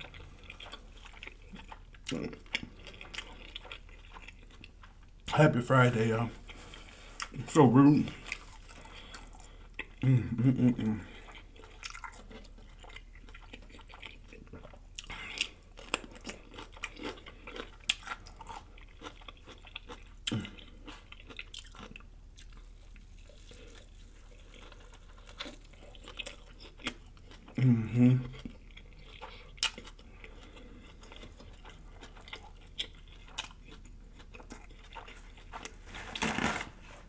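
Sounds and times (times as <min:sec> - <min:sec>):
person chewing food: 0:00.0 - 0:37.0
small crunches: 0:31.1 - 0:37.0.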